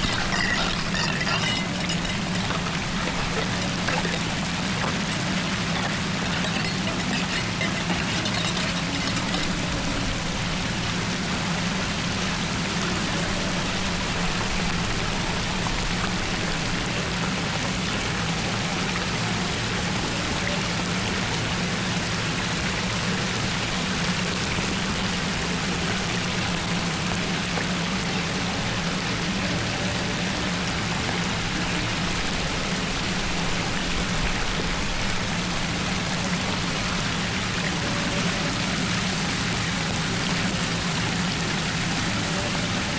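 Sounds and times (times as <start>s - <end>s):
low steady hum: 0.0s - 14.2s
floodwater rushing: 0.0s - 42.9s.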